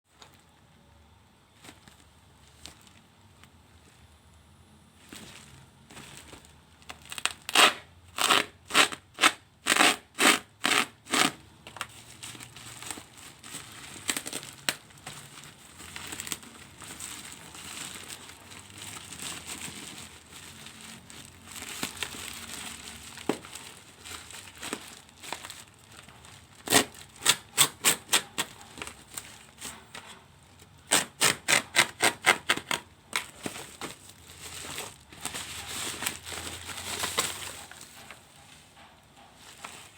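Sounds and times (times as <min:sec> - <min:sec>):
wrapping crinkling: 0:01.5 - 0:04.1, 0:04.9 - 0:39.9
packaging tearing strokes: 0:07.0 - 0:29.5, 0:30.8 - 0:38.2.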